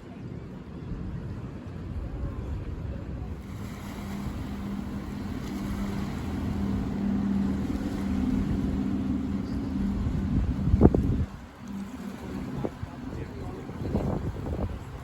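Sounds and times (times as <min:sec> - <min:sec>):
large engine humming: 0:03.2 - 0:15.0.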